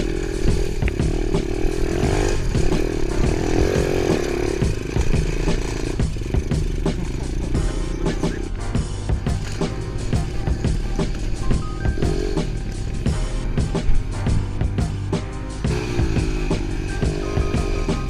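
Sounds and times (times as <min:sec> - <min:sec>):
dirt bike engine revving: 0:00.0 - 0:08.4, 0:15.7 - 0:18.0.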